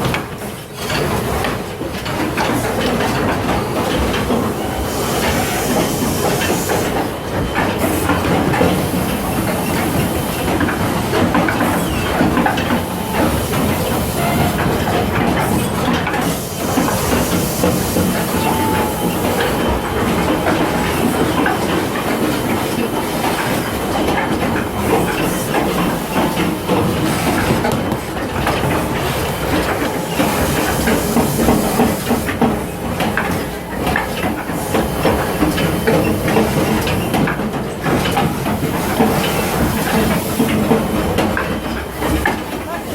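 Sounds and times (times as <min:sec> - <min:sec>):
hiss of moving air: 0:11.6 - 0:27.6.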